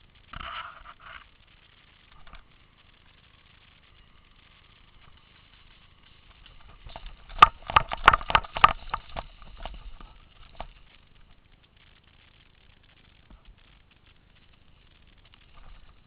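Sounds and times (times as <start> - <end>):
sharp knocks or pops: 6.5 - 10.8.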